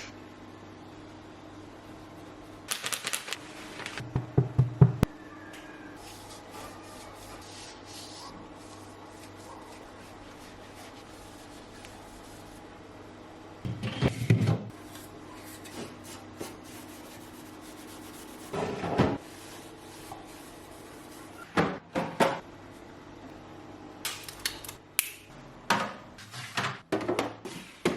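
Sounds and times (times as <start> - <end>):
items handled in a refrigerator: 25.7 - 27.9.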